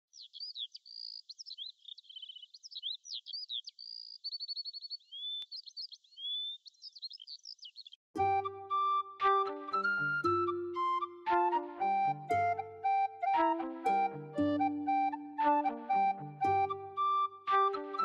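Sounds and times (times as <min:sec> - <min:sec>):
songbird singing: 0:00.0 - 0:18.0
music with flute-like notes: 0:08.2 - 0:18.0.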